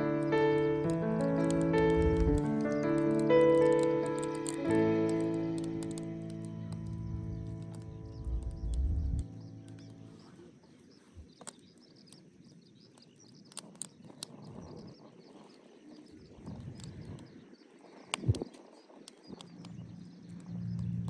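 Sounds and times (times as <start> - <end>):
light clicks: 0.0 - 10.3
birds chirping: 0.0 - 21.0.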